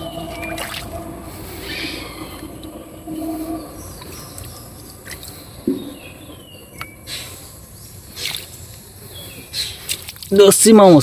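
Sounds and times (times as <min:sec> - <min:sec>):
water splashing and sloshing: 0:00.0 - 0:10.4.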